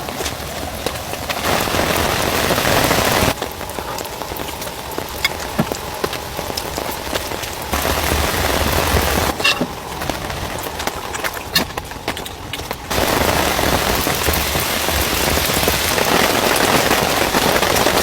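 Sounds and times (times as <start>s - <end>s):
heavy rain falling: 0.0s - 18.0s.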